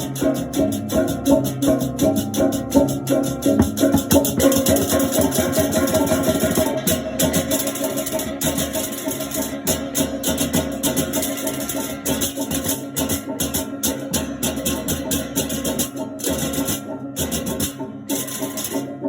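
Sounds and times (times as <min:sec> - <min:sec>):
pitched gong tones: 0:00.0 - 0:09.7
clashing cymbals: 0:00.0 - 0:19.0
drums: 0:00.0 - 0:19.0.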